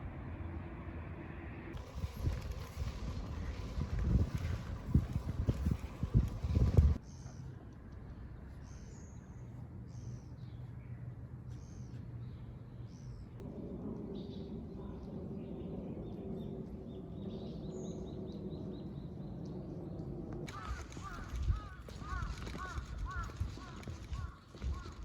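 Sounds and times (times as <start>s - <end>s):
birds calling: 20.5s - 25.0s.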